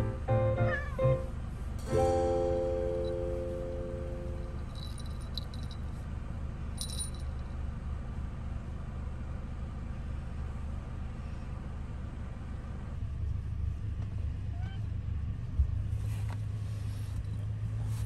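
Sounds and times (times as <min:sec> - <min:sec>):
steady low hum: 0:00.0 - 0:07.6
cat collar bell jingling: 0:04.4 - 0:05.9, 0:06.8 - 0:07.4.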